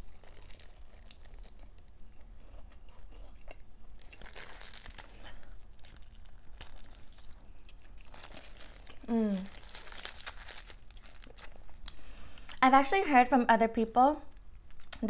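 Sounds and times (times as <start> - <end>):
crunchy chewing: 0.0 - 12.5.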